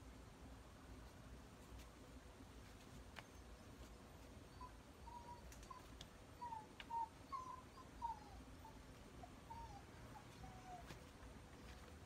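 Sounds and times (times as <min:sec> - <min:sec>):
faint clicks: 0:05.4 - 0:06.2.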